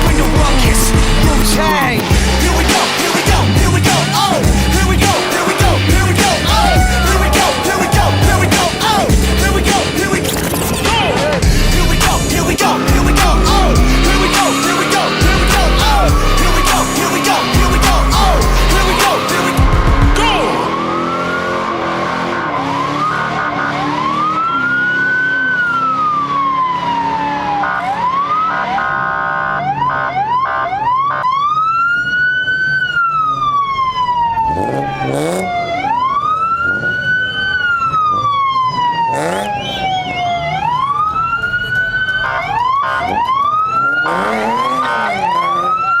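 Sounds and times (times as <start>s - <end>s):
choppy siren blips: 0.0s - 46.0s
police siren wailing: 0.0s - 46.0s
short horn blasts: 42.2s - 43.2s.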